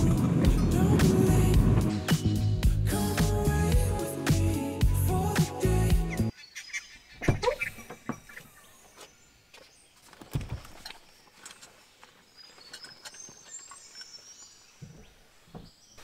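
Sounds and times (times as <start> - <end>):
faint bird chirps: 6.3 - 16.0.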